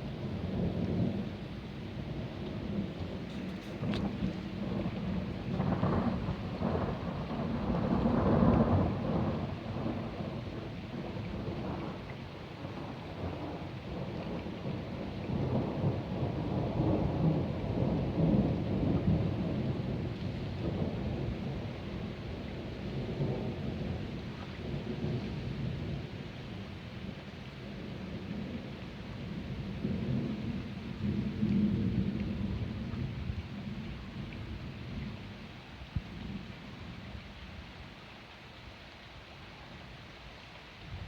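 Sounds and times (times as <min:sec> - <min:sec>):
steady rain: 0:00.0 - 0:41.0
rolling thunder: 0:00.2 - 0:12.0, 0:12.6 - 0:26.6.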